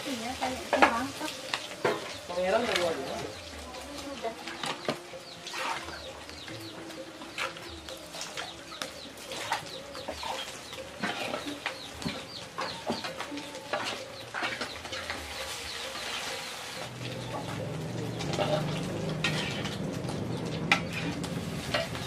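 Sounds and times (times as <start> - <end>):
birds chirping: 0.1 - 22.0.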